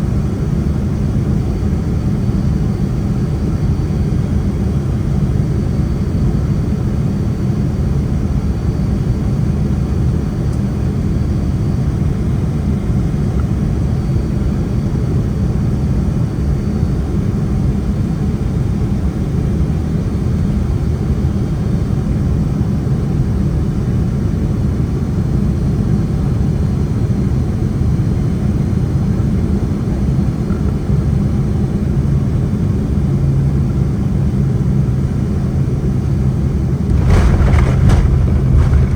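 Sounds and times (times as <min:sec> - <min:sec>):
airplane cabin engine rumble: 0:33.1 - 0:38.9.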